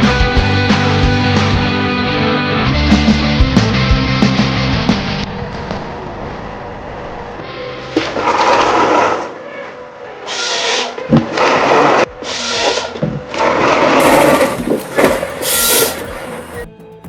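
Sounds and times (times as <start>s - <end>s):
power saw cutting wood: 10.5s - 16.6s.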